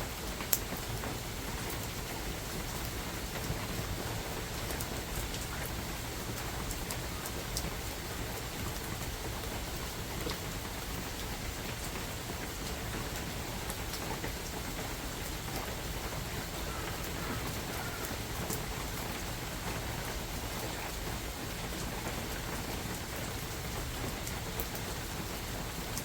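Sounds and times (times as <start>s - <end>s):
steady rain hiss: 0.0s - 26.0s
raindrops ticking: 0.2s - 26.0s.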